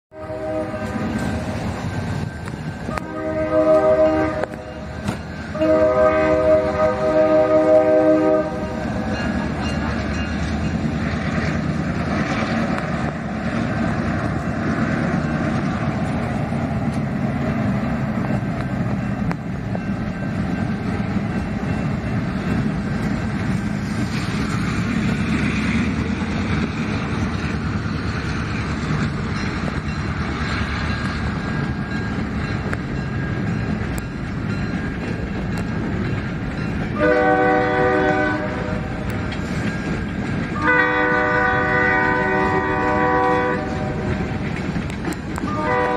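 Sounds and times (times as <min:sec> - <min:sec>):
locomotive air horn: 0:00.1 - 0:01.4, 0:02.9 - 0:04.9, 0:05.5 - 0:08.9, 0:37.0 - 0:39.1, 0:40.6 - 0:44.2, 0:45.4 - 0:45.9
train wheels rolling on rails: 0:00.1 - 0:45.9
diesel engines rumbling: 0:00.2 - 0:45.9.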